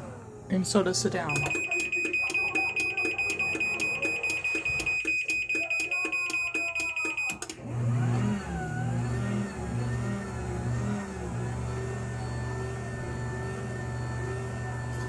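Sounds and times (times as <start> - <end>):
garage door motor humming: 0.0 - 15.0
high-pitched rapid beeping: 1.3 - 7.5.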